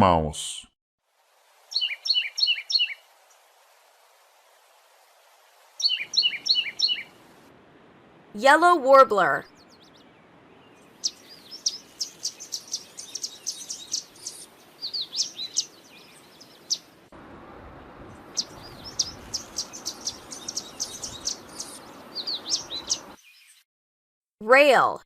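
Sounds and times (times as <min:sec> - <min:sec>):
warbler singing: 0:01.7 - 0:03.0, 0:05.8 - 0:07.1, 0:09.3 - 0:16.9, 0:17.6 - 0:23.6.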